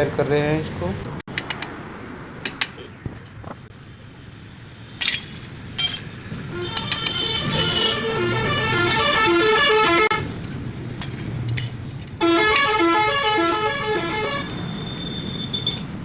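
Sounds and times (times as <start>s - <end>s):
musical vehicle horn tune: 6.5s - 10.2s, 12.2s - 14.6s.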